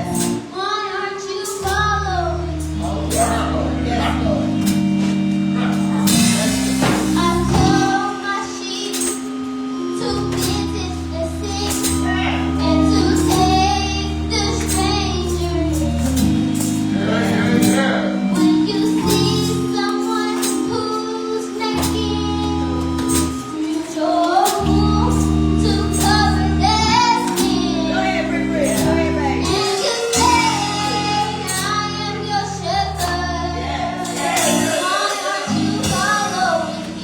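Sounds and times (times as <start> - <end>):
singers: 0.0 - 4.6, 10.0 - 37.0
held keyboard chords: 0.0 - 37.0
light percussion hits: 4.6 - 8.2.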